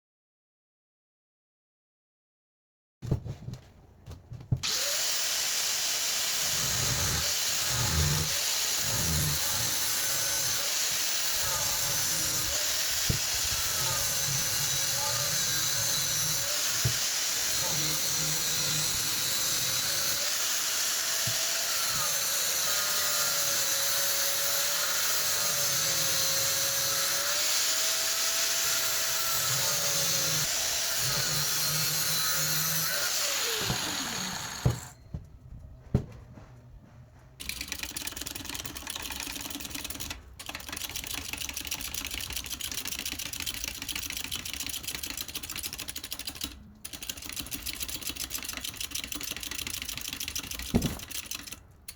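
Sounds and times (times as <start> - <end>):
power tool whining: 4.6 - 35.2.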